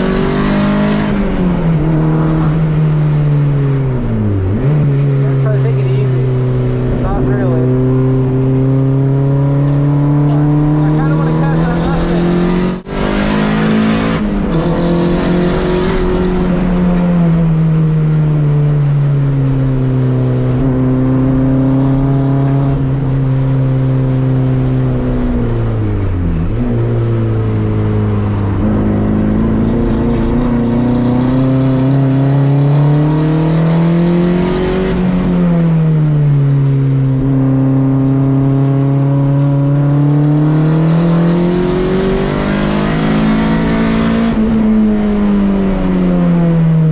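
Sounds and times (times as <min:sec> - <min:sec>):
race car engine revving: 0:00.0 - 0:46.9.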